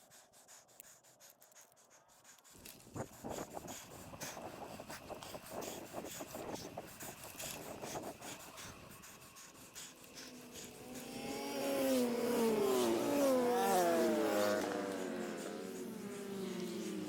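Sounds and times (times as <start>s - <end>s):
rushing wind noise: 2.6s - 9.0s
vehicle passing close by: 10.7s - 17.0s.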